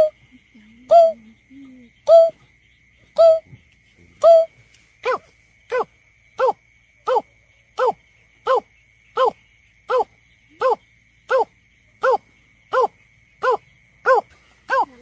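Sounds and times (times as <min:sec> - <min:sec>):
bird calls: 0:00.0 - 0:05.2.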